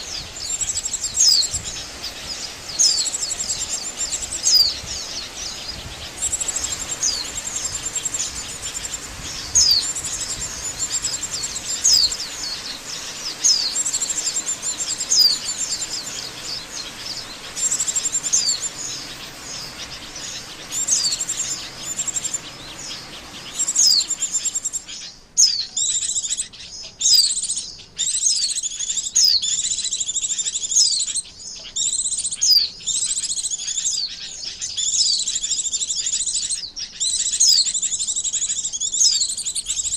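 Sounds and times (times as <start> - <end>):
background hiss: 0.0 - 39.9
high thin bird chirps: 0.0 - 39.9.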